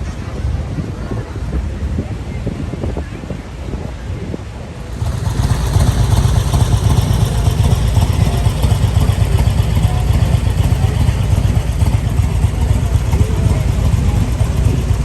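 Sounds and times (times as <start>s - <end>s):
motorcycle engine running: 4.8s - 15.0s.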